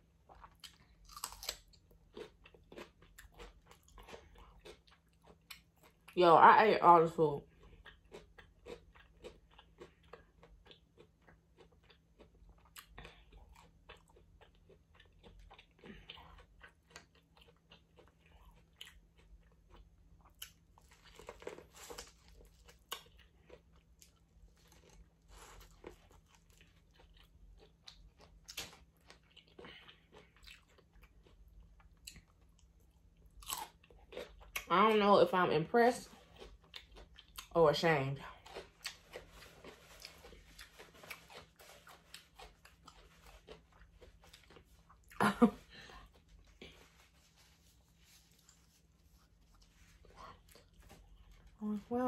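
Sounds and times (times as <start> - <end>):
person chewing: 0.0 - 6.2, 7.5 - 34.7, 36.1 - 37.6, 38.2 - 51.7.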